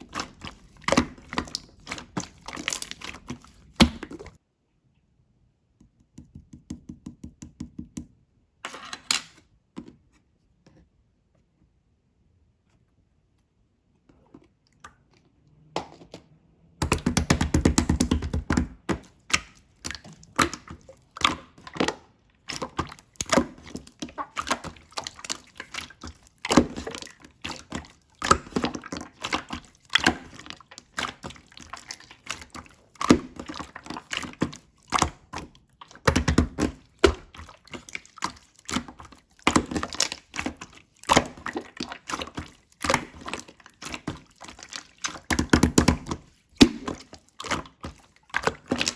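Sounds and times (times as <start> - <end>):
slime squishing by hand: 0.0 - 4.4, 16.8 - 48.9.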